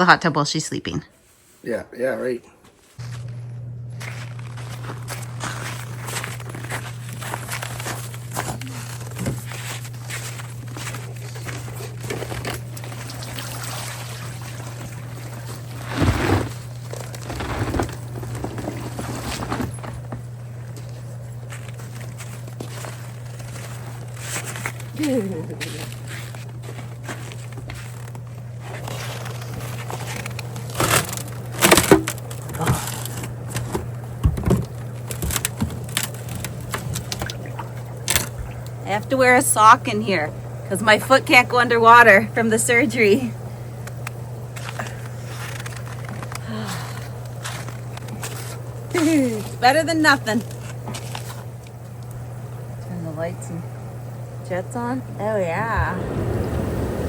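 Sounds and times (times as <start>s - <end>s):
steady low hum: 0.0s - 57.0s
footsteps crunching in wet snow: 3.0s - 19.3s
burst of noise: 55.8s - 57.0s.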